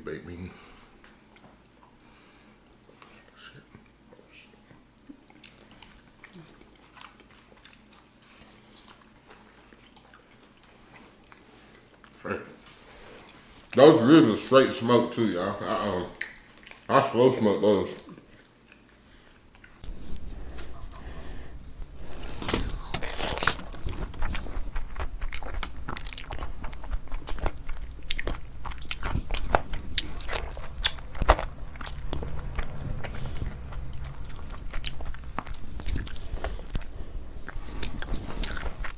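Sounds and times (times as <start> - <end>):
person chewing food: 5.0 - 12.2, 18.2 - 38.9.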